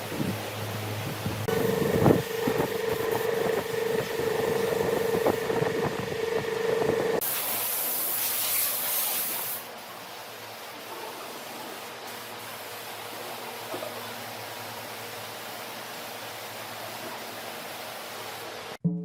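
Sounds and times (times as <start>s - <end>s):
motor humming: 1.2s - 7.2s.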